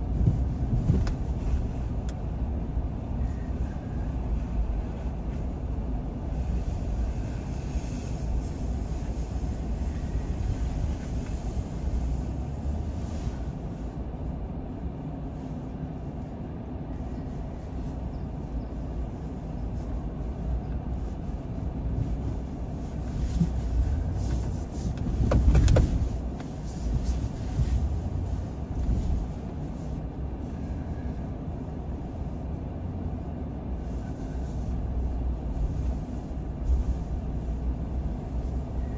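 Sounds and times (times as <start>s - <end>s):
car driving rumble: 0.0s - 38.9s
car jolt: 25.0s - 26.1s.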